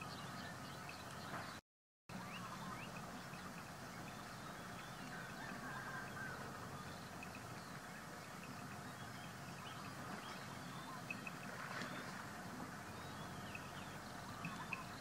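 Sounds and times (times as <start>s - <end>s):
bird chirping: 0.0s - 12.2s, 12.8s - 15.0s
gliding bird call: 12.9s - 15.0s.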